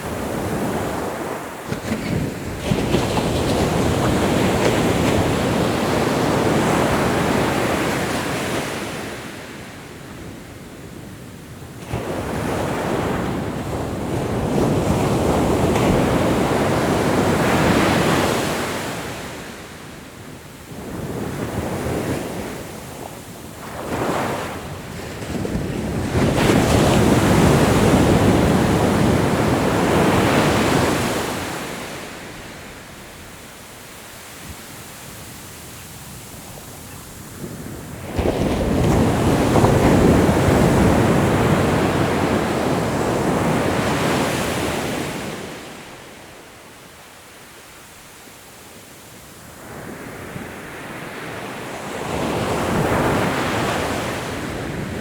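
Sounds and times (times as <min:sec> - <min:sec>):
ocean waves breaking: 0:23.6 - 0:46.1.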